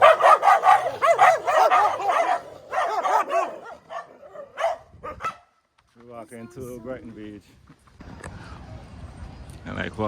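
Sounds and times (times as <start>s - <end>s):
dog barking: 0.0s - 5.5s.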